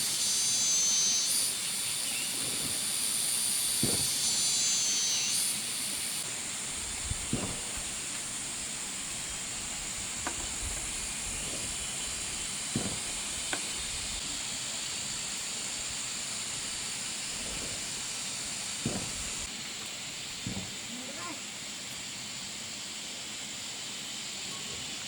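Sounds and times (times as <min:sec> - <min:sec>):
high-pitched hiss: 0:00.0 - 0:25.0
knocks on bamboo: 0:03.8 - 0:04.2, 0:07.3 - 0:08.0, 0:12.7 - 0:13.7, 0:18.8 - 0:19.4, 0:20.4 - 0:20.8.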